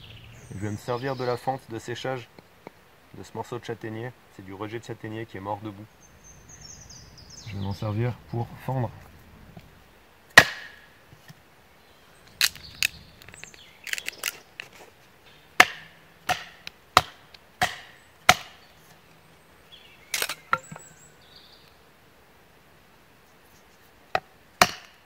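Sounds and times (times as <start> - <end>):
knife striking dry wood: 10.4 - 10.9, 15.6 - 18.7, 24.1 - 25.0.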